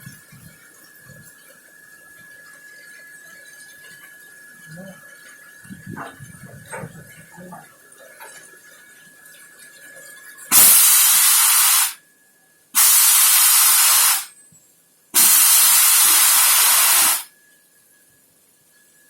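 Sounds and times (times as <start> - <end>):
faint high whine: 0.0 - 19.0
compressed air hissing from brakes: 10.5 - 12.0, 12.8 - 14.4, 15.2 - 17.3.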